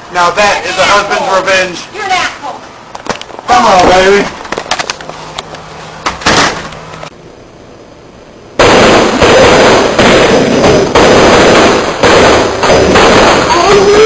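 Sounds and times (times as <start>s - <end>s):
firecrackers crackling: 8.6s - 14.0s.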